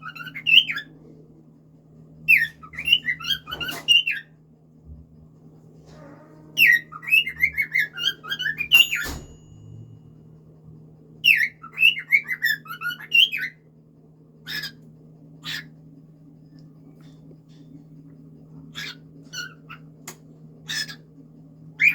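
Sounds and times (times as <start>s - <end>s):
steady low hum: 0.0s - 21.9s
cockatiel whistling: 6.6s - 9.2s
bird chirps: 6.6s - 9.4s.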